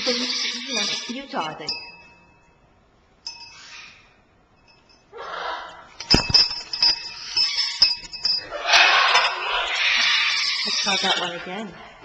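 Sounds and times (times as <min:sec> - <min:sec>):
parrot raspy calls: 0:00.0 - 0:01.3, 0:03.5 - 0:04.2, 0:05.1 - 0:06.0, 0:08.5 - 0:12.0
bell-like ringing: 0:01.7 - 0:03.7, 0:04.6 - 0:05.1, 0:06.0 - 0:08.6
metal toy clinking and knocking: 0:06.0 - 0:09.4.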